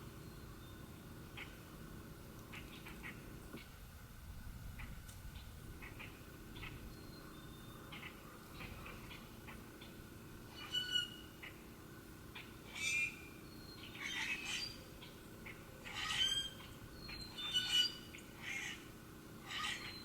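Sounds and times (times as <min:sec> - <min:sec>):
harsh squawking bird calls: 0:07.9 - 0:11.6, 0:12.3 - 0:20.0.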